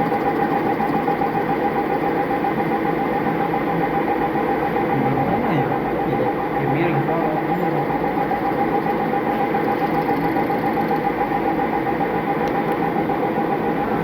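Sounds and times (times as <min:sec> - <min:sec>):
lathe running: 0:00.0 - 0:14.0.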